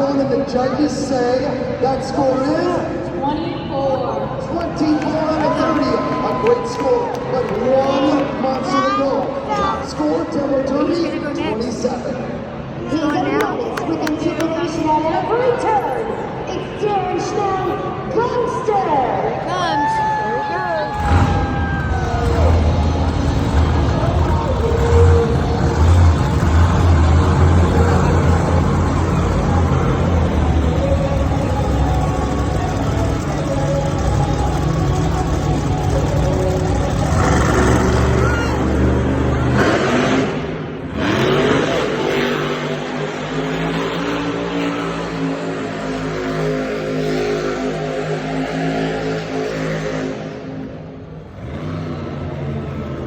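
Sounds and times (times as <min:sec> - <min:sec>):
monster truck engine rumbling: 0:20.7 - 0:53.0.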